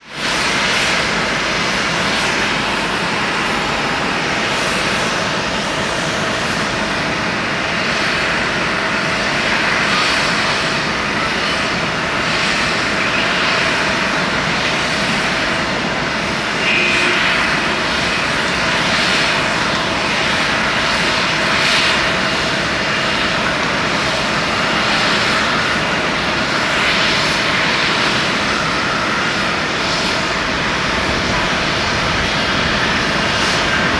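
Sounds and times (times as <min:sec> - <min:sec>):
jet engines at takeoff power: 0:00.0 - 0:33.9.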